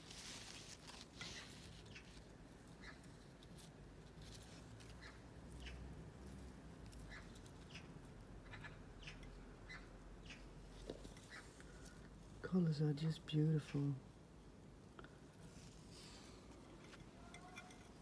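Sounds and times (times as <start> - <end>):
faint bird chirps: 7.0 - 10.5.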